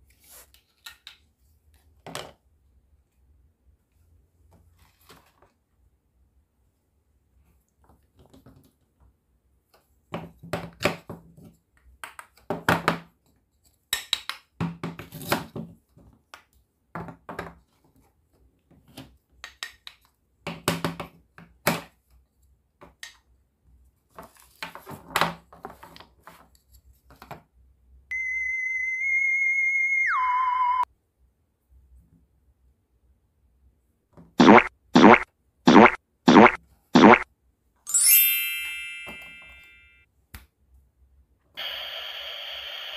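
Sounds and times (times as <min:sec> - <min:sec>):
steady electronic tone: 0:28.1 - 0:30.8.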